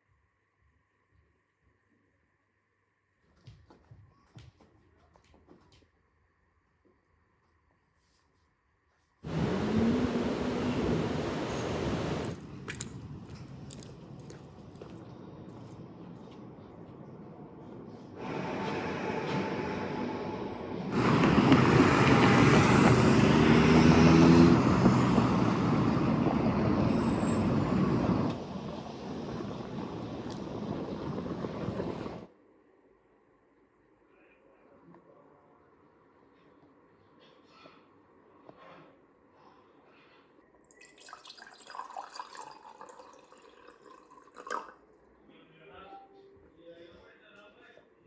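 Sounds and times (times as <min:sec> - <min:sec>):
vehicle engine hum: 0:09.3 - 0:32.3.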